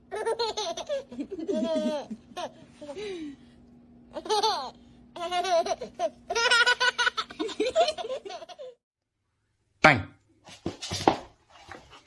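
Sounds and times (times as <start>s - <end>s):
steady low hum: 0.0s - 8.8s
person laughing: 0.5s - 3.4s, 5.3s - 8.8s.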